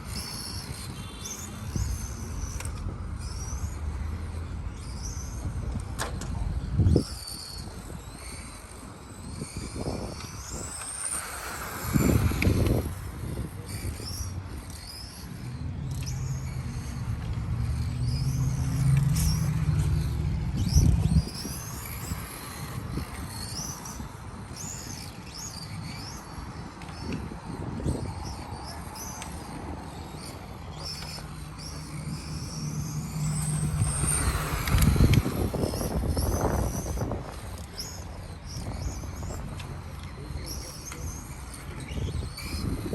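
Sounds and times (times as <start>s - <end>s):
rc car motors whining: 0.0s - 42.9s.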